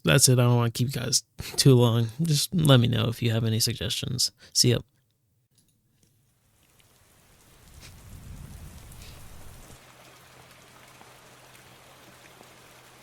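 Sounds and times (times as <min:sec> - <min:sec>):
rain falling: 0:06.3 - 0:13.0.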